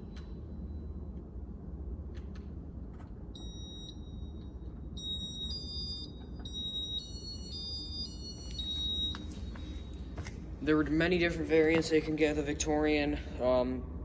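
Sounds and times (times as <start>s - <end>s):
high electronic beeps: 3.4s - 10.0s.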